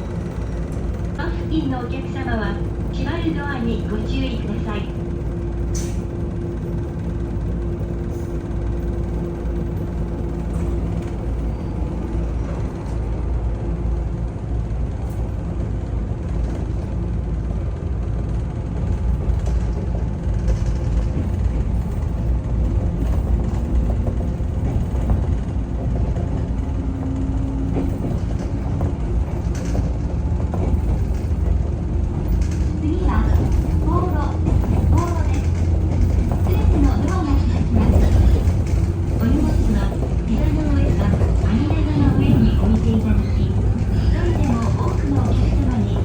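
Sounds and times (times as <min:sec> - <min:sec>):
train interior rumble: 0:00.0 - 0:46.0.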